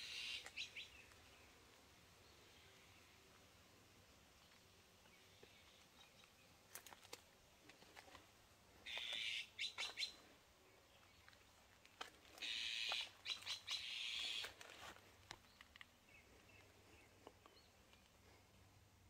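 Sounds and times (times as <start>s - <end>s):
birds chirping harshly: 8.8s - 10.2s, 12.4s - 14.5s.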